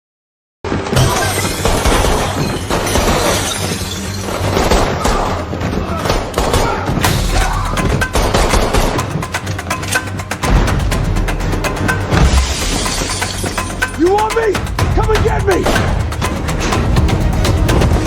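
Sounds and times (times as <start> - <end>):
shattering and crashing effects: 0.9 - 5.4, 7.0 - 10.9, 12.0 - 14.0
dramatic music: 1.0 - 18.0.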